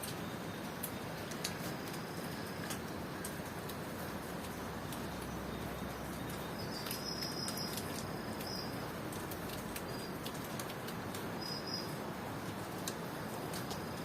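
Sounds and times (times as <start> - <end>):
sharp drips: 0.0 - 14.0
steady rain: 0.0 - 14.0
cricket trilling: 11.4 - 11.9.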